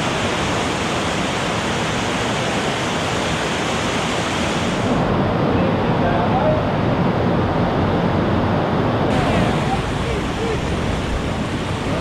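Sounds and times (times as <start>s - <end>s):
white water rushing through rapids: 0.0s - 12.0s.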